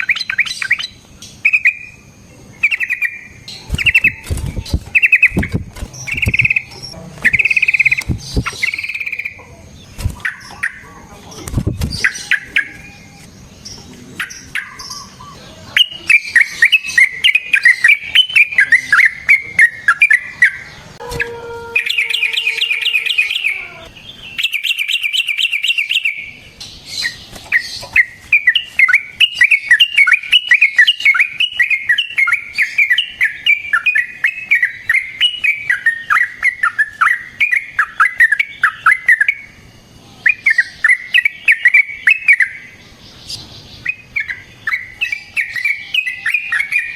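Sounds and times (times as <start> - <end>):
buzzing bird trills: 0.0 - 11.0, 14.3 - 26.2
bulbul singing: 0.0 - 46.9.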